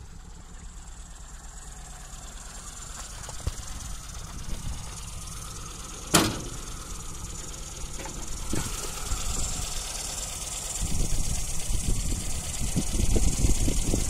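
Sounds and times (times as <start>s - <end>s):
car engine idling: 0.0s - 14.0s
sharp engine knocks: 6.0s - 6.7s, 7.4s - 9.0s.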